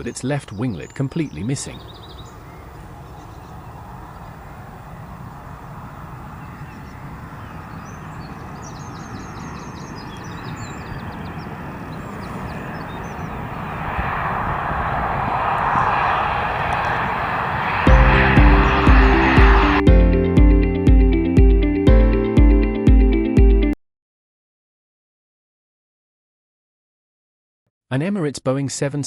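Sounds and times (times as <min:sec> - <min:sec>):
jet airliner landing: 0:01.0 - 0:20.2.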